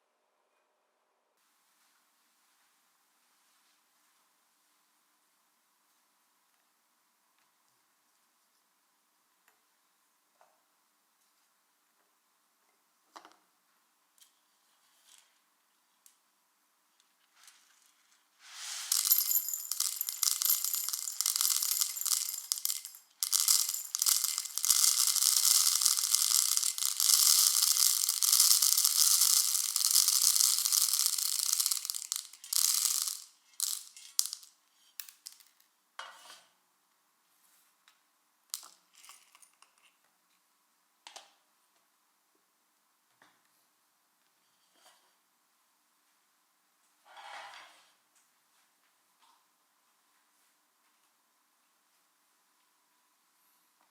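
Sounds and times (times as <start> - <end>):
coffee beans rattling in container: 18.5 - 34.5.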